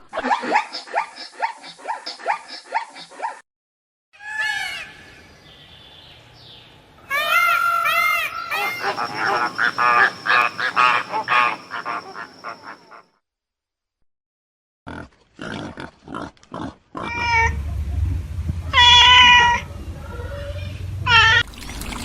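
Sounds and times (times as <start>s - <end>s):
long pitched animal call: 7.1s - 13.0s
short pitched animal calls: 8.6s - 13.0s.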